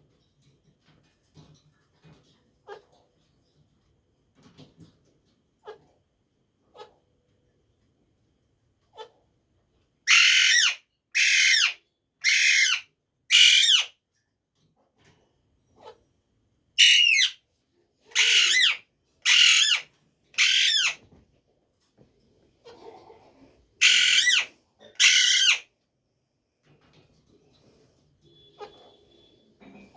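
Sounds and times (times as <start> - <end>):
parrot squawking: 10.1 - 13.9, 16.8 - 17.4, 18.1 - 21.0, 23.8 - 25.7.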